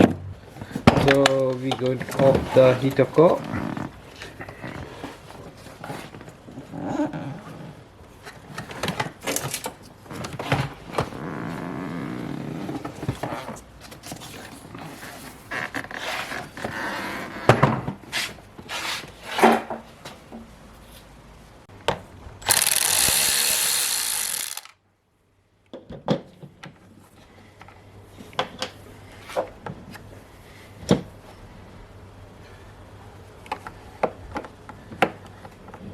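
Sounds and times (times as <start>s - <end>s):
tools clicking and knocking: 22.4s - 24.8s.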